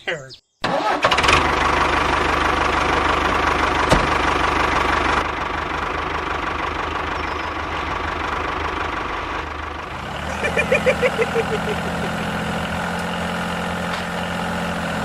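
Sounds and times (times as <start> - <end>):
engine idling: 1.0 - 15.0.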